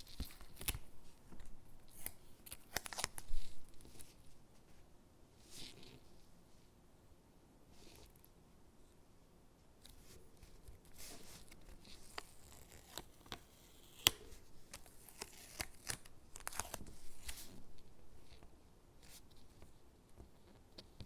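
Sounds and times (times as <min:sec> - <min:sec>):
paper rustling: 0:14.0 - 0:17.6.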